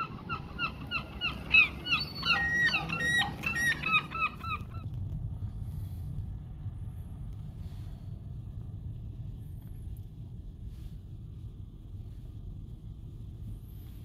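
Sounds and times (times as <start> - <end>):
birds calling rapidly: 0.0 - 4.9
low steady rumble: 0.0 - 14.0.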